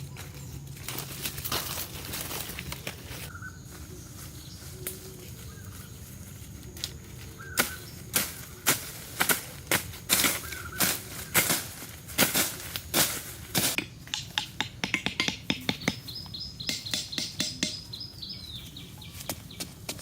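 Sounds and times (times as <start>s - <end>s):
high chirps: 13.8s - 19.3s.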